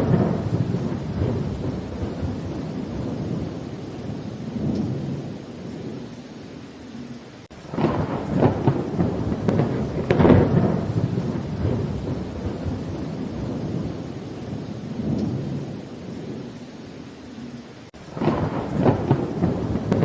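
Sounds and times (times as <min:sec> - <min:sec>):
thunder clap: 0:00.0 - 0:05.3, 0:07.6 - 0:16.3, 0:18.1 - 0:20.0
steady rain: 0:00.0 - 0:20.0.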